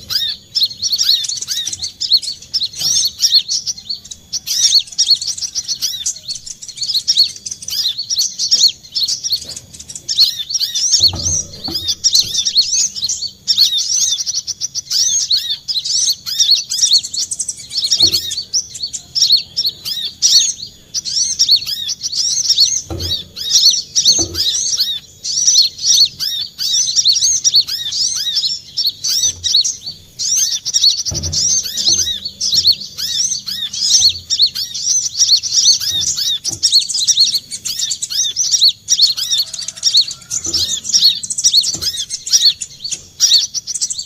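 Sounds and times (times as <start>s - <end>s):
bird chirping and twittering: 0.0s - 44.0s
dull low thump: 10.9s - 13.1s, 22.8s - 24.8s, 31.0s - 33.2s.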